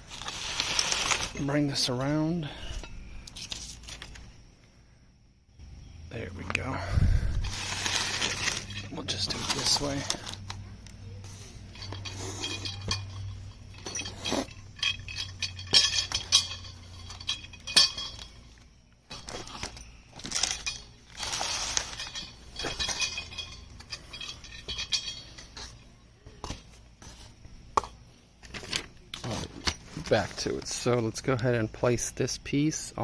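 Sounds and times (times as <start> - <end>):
metal nuts and bolts clinking: 6.6 - 26.7.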